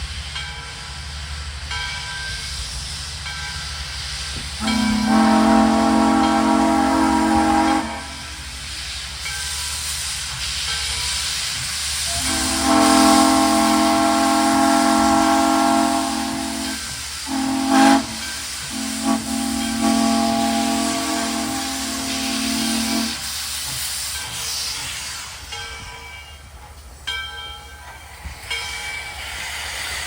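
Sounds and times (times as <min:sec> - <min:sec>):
steam hiss: 0:00.0 - 0:30.0
locomotive whistle blasts: 0:04.6 - 0:08.5, 0:12.1 - 0:23.4.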